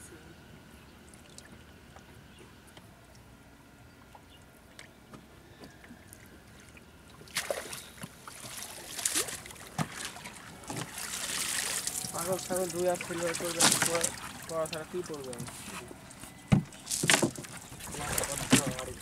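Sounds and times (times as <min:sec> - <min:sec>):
water splashing and trickling: 0:01.0 - 0:02.2, 0:05.8 - 0:19.0
small knocks on boat: 0:16.5 - 0:19.0.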